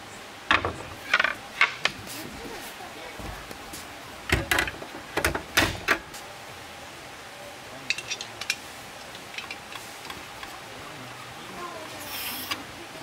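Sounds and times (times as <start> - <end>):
objects knocking and clattering: 0.5 - 2.0, 4.3 - 6.1.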